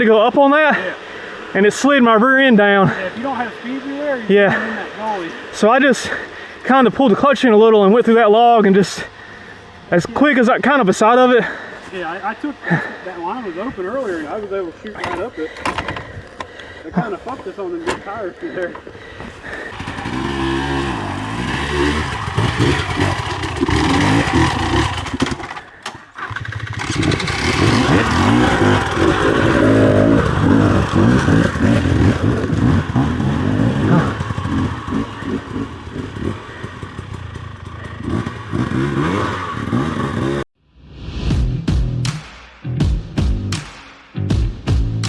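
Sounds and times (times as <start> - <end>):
dirt bike engine revving: 17.0 - 40.5
clatter: 22.0 - 33.2.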